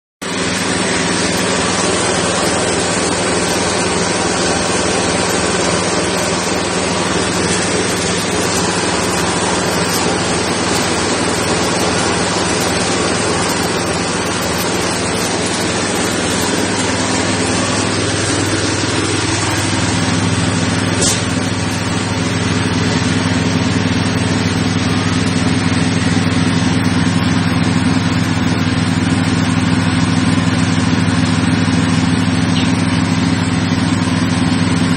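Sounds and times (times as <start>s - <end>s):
engine hum: 0.2s - 34.9s
mill grinding rushing noise: 0.2s - 34.9s.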